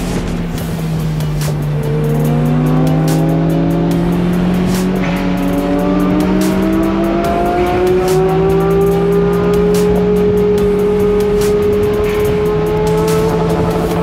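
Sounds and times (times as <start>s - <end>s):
car engine pulling hard: 0.0s - 14.0s.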